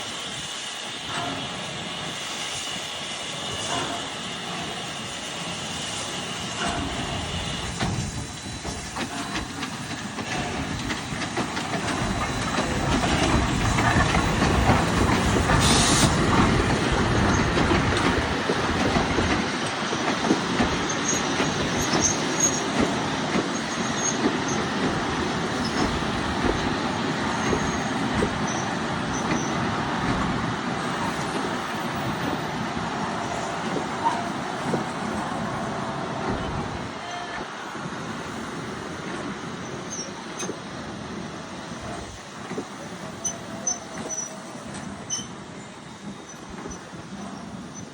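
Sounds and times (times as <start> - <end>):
steam train running on rails: 0.0 - 47.9
high-pitched wheel squeals: 20.9 - 22.7, 43.1 - 45.4.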